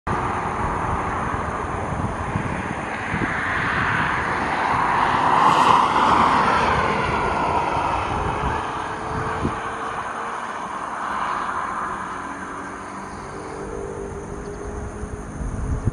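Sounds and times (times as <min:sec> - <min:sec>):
jet airliner passing by: 0:00.1 - 0:15.9.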